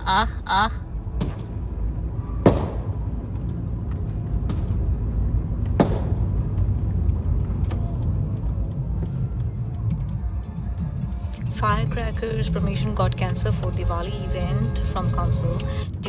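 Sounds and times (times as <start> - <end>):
low rumble: 0.0 - 16.0
faint firecracker pops: 1.2 - 1.6, 2.4 - 3.0, 5.6 - 6.8
firecracker bang: 2.4 - 3.1, 5.6 - 6.4.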